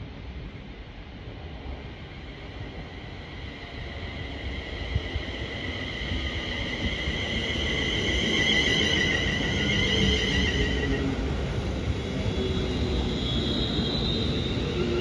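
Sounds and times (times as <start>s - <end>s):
train rumbling past: 0.1s - 15.0s
wheels squealing on rails: 3.0s - 15.0s.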